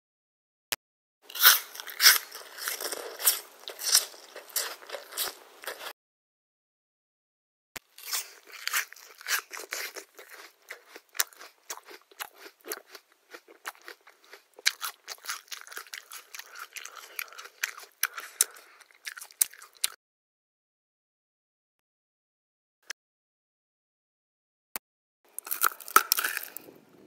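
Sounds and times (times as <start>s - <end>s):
person chewing crunchy food: 1.3s - 5.9s, 7.8s - 20.0s, 25.3s - 26.8s.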